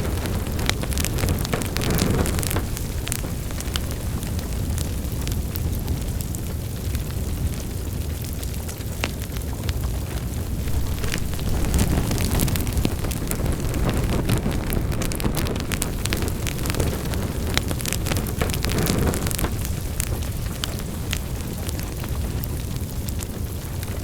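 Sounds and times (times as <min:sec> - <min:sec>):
wood fire crackling and popping: 0:00.0 - 0:24.0.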